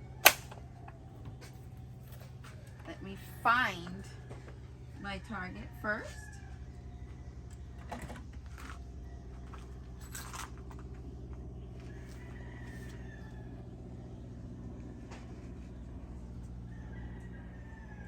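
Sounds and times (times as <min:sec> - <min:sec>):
steady low hum: 0:00.0 - 0:18.0
rifle handling clicks: 0:00.2 - 0:00.6
rooster crowing: 0:05.3 - 0:07.6, 0:11.8 - 0:14.0, 0:16.5 - 0:18.0.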